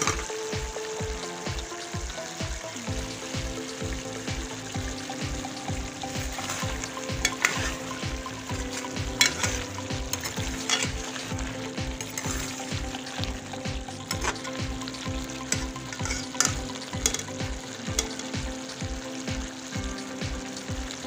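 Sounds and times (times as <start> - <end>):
food sizzling in a pan: 0.0 - 21.0
metal spoon scraping a pan: 6.1 - 13.3, 14.1 - 14.6, 15.5 - 17.4.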